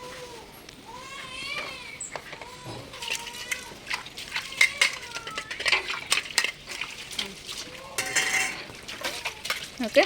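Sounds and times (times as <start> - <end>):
cat meowing: 0.0 - 5.7
dishes and utensils clinking: 2.1 - 9.6.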